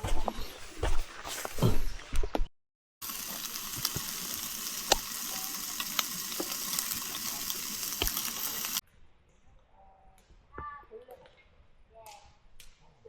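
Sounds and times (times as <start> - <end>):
food sizzling in a hot pan: 3.0 - 8.8.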